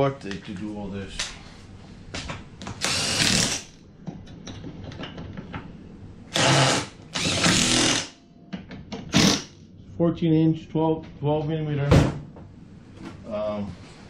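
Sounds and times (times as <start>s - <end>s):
power drill running: 2.8s - 3.7s, 6.3s - 8.2s.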